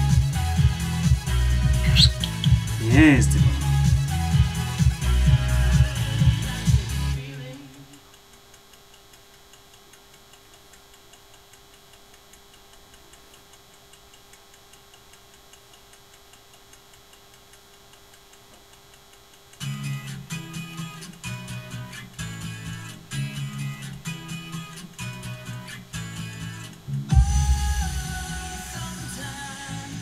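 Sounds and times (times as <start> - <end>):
music: 0.0 - 7.8, 19.6 - 30.0
clock ticking: 7.9 - 25.3.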